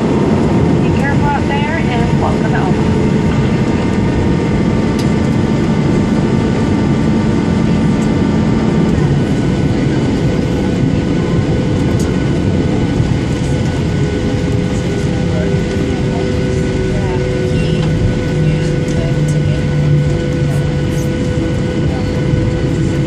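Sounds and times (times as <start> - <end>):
airplane cabin rumble: 0.0 - 23.0
thin engine whine: 0.0 - 23.0.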